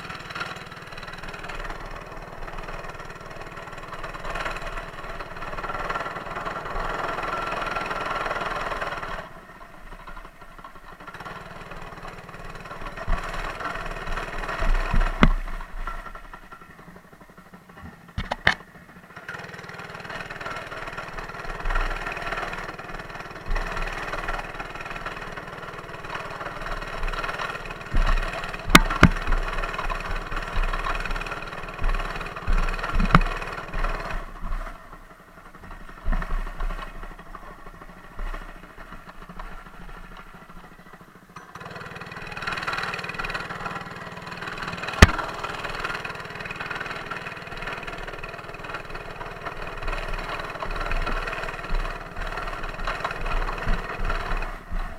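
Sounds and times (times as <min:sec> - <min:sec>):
mini bike engine running: 0:00.0 - 0:54.9
sharp knocks: 0:14.6 - 0:16.0, 0:27.0 - 0:34.3, 0:45.0 - 0:45.4.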